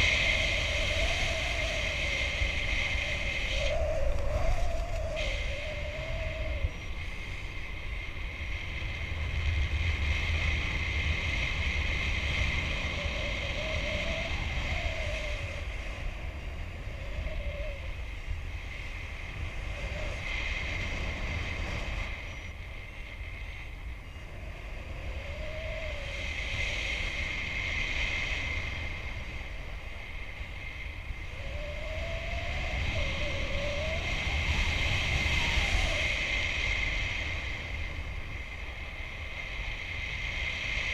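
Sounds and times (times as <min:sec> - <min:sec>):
faint wavering whistle: 0:00.0 - 0:08.3, 0:12.9 - 0:20.7, 0:21.9 - 0:24.3, 0:30.3 - 0:38.4
wind buffeting microphone: 0:00.0 - 0:40.9.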